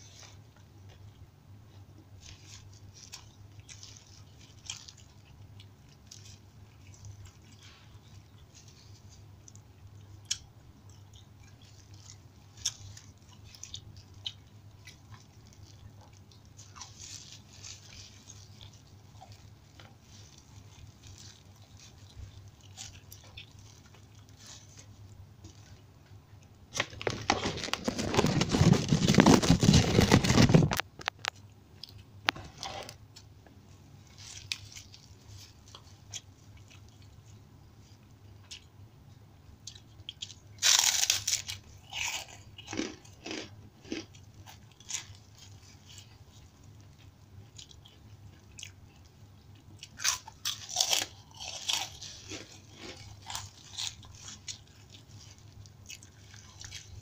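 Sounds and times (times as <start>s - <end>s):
quiet chewing: 0.0s - 57.0s
cracker crunching and cracking: 2.0s - 33.3s, 39.6s - 57.0s
loud crinkling rustle: 11.6s - 25.8s, 26.7s - 31.3s, 34.0s - 36.2s, 40.6s - 42.2s.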